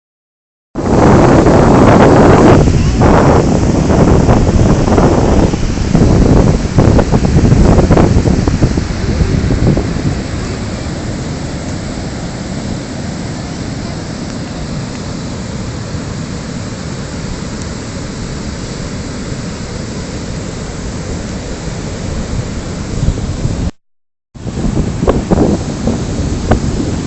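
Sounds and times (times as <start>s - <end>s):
wind buffeting microphone: 0.8s - 15.2s, 21.3s - 23.7s, 24.4s - 27.0s.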